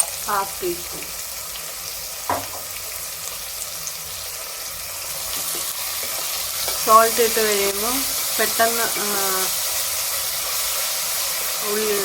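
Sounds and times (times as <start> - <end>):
onions sizzling in hot oil: 0.0 - 12.0
short knock: 2.3 - 2.6.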